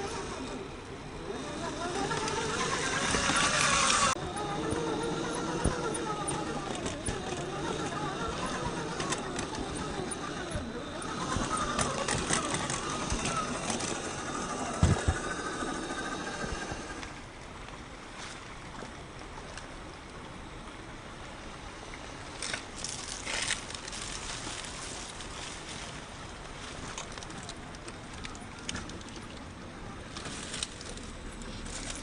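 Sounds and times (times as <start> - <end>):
toy car motor whining: 0.0 - 17.2.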